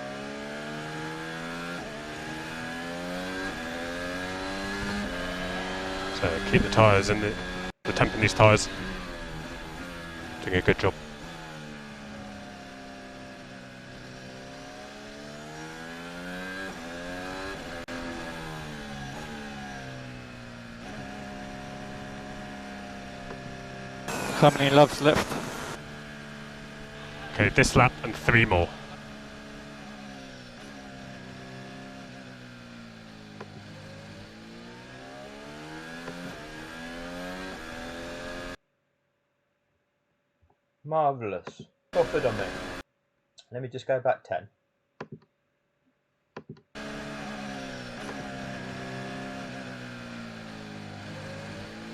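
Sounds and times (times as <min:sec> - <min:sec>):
racing car engine: 0:00.0 - 0:38.6, 0:42.0 - 0:42.8, 0:46.8 - 0:51.9
gear upshifts: 0:26.8 - 0:32.1.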